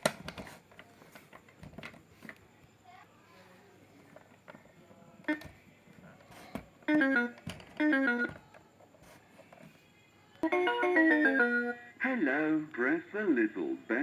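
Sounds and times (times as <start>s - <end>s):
toy speaker playing melodic jingles: 6.8s - 8.3s, 10.4s - 11.8s.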